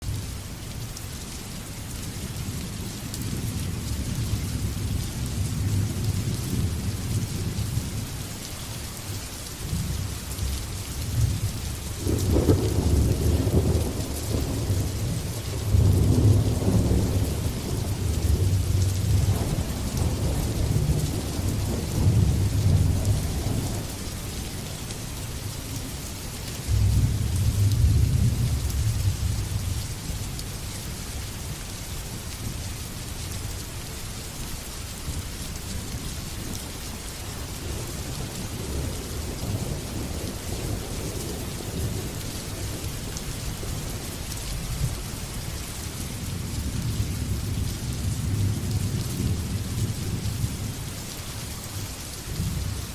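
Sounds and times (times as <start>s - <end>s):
steady rain: 0.0s - 52.9s
rolling thunder: 11.1s - 25.0s, 26.6s - 29.8s.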